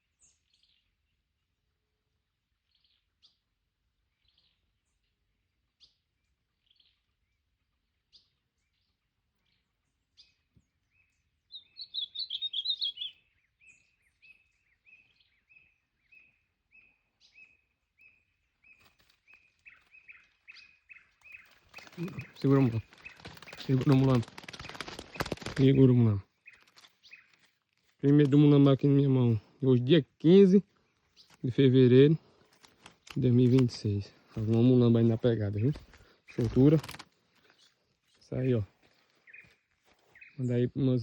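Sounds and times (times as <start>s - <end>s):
bird warbling song: 2.6s - 41.0s
bird chipping: 11.0s - 40.4s.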